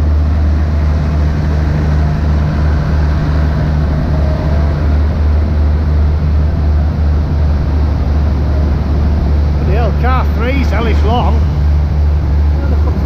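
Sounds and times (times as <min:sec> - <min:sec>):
diesel train idling: 0:00.0 - 0:13.0
faint hum: 0:00.0 - 0:13.0.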